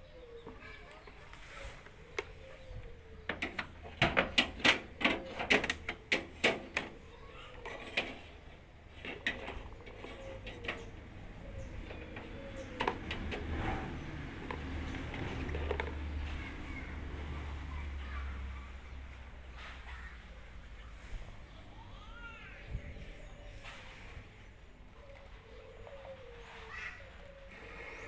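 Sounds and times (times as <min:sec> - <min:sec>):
hard parts clicking and knocking: 0:03.3 - 0:16.6.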